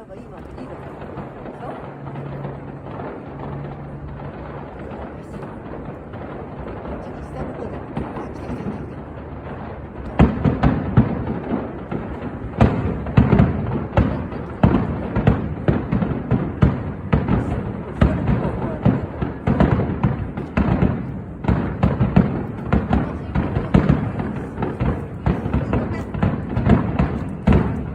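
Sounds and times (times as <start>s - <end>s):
continuous low rumble: 0.0s - 27.9s
firework shells bursting: 0.1s - 27.9s.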